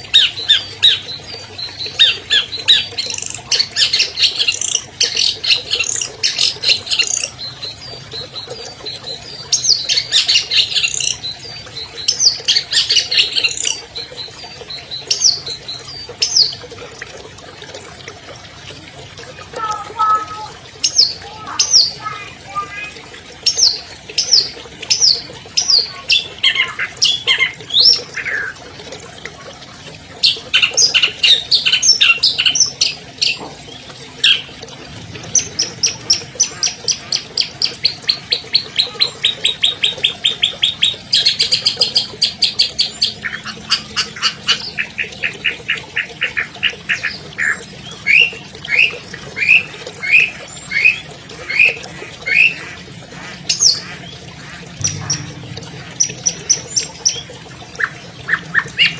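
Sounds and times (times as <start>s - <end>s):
bird singing with whistles and trills: 54.8s - 55.5s.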